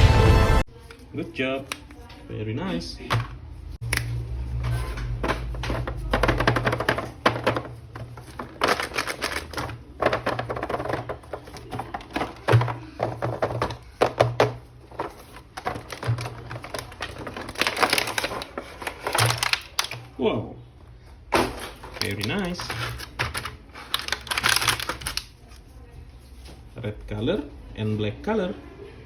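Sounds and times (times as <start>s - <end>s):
plastic packaging being opened: 3.9s - 20.2s, 21.4s - 25.6s.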